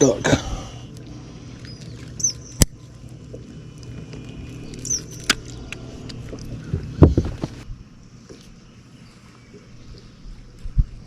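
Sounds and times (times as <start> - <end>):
boat engine humming with clicks: 0.0 - 11.0.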